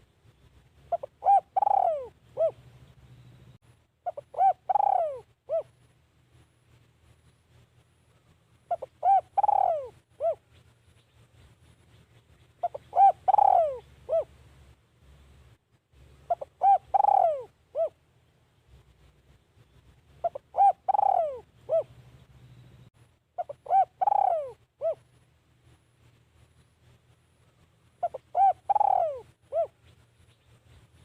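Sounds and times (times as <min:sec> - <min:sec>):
dove cooing: 0:00.8 - 0:02.8, 0:04.0 - 0:05.8, 0:08.7 - 0:10.6, 0:12.6 - 0:14.4, 0:16.3 - 0:18.0, 0:20.2 - 0:22.1, 0:23.4 - 0:25.1, 0:28.0 - 0:30.0.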